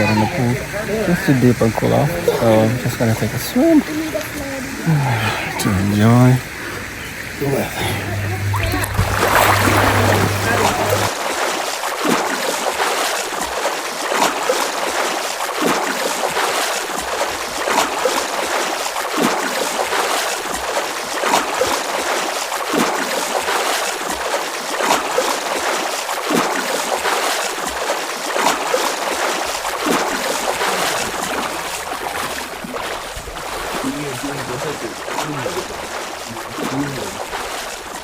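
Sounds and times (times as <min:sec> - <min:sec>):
water splashing from swimmer: 0:00.0 - 0:38.0.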